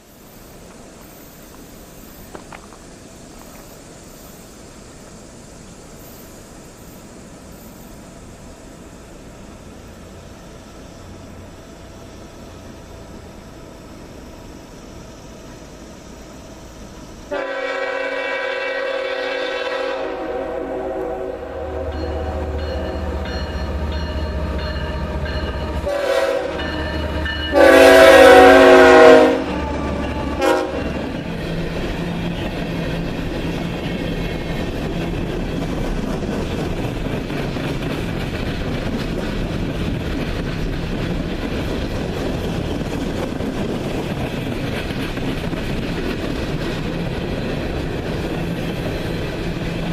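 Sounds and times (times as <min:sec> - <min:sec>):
train wheels clicking over rail joints: 0:00.0 - 0:17.3, 0:21.8 - 0:49.9
locomotive air horn blasts: 0:17.3 - 0:23.1, 0:25.1 - 0:31.0.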